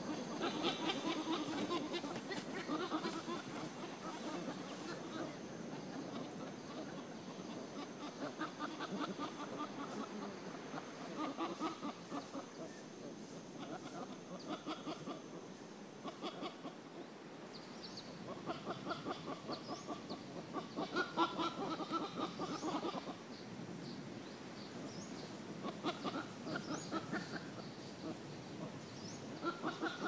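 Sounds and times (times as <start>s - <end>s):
bird chattering calls: 0.0s - 5.1s, 24.9s - 30.0s.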